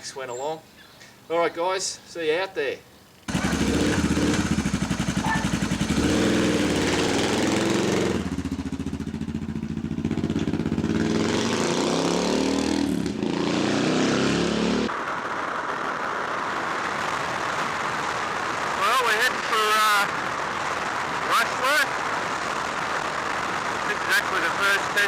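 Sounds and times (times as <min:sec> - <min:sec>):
motorcycle engine revving: 0:03.3 - 0:14.9.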